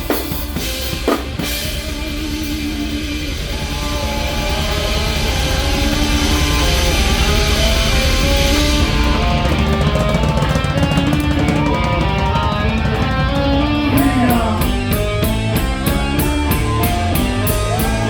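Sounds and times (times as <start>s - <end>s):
cymbals crashing: 0.0s - 13.3s
drum hits: 0.0s - 18.0s
electric guitar: 0.0s - 18.0s
live heavy rock band: 0.0s - 18.0s.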